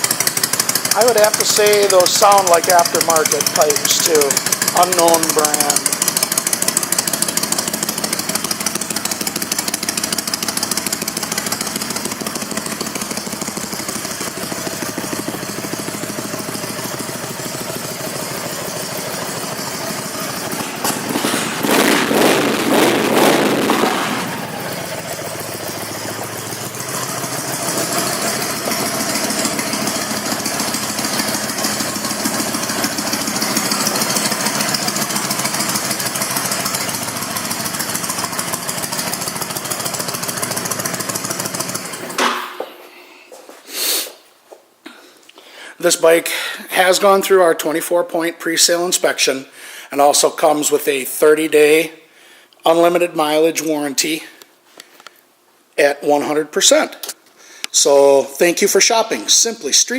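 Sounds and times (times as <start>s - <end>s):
motorcycle engine idling and revving: 0.0s - 42.7s.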